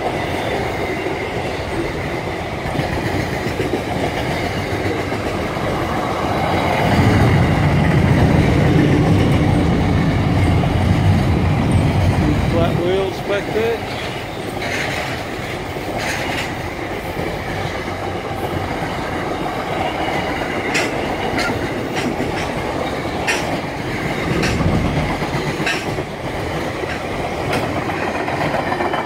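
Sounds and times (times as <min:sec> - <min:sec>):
steel wheels rumbling on rail: 0:00.0 - 0:29.0
sharp clicks and clanks: 0:20.7 - 0:26.1.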